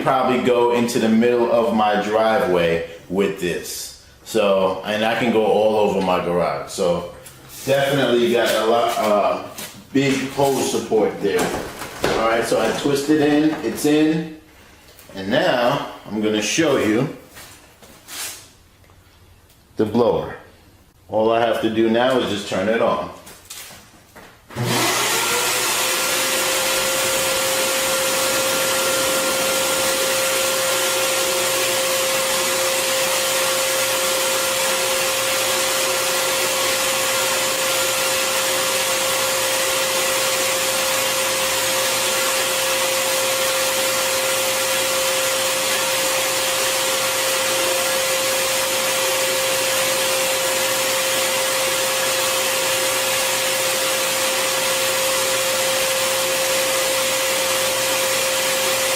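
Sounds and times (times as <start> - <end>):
vacuum blower motor running: 10.0 - 13.8, 24.5 - 58.9.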